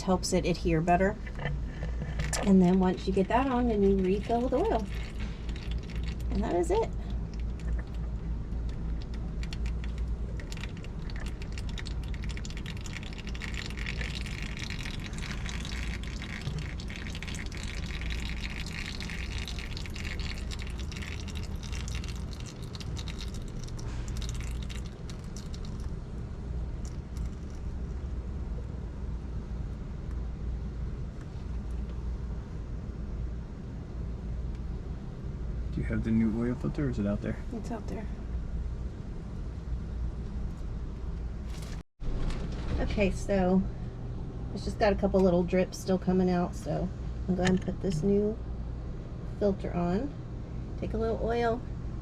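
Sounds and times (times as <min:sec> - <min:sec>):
low steady hum: 0:00.0 - 0:52.0
oil trickling into a pan: 0:03.7 - 0:26.0.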